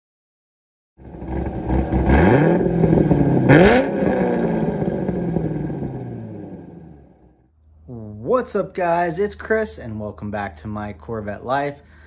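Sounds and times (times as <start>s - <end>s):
car engine revving and idling: 1.0s - 7.4s.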